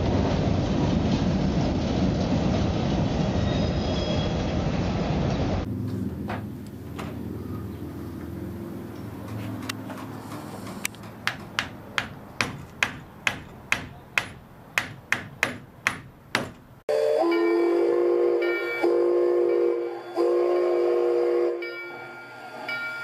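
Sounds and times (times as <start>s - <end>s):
hammer blows on metal: 11.0s - 16.8s
train horn: 16.9s - 22.1s.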